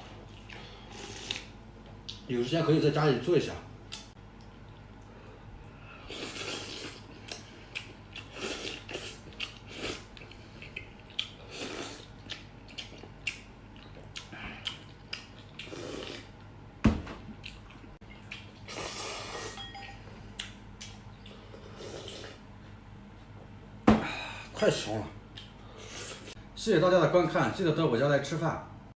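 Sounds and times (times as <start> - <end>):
person chewing: 0.2 - 2.2, 6.0 - 16.5, 17.4 - 19.6, 20.3 - 22.4, 25.3 - 26.3
person slurping soup: 0.9 - 1.5, 6.0 - 7.0, 8.3 - 10.1, 15.6 - 16.3, 18.7 - 19.6, 21.6 - 22.4.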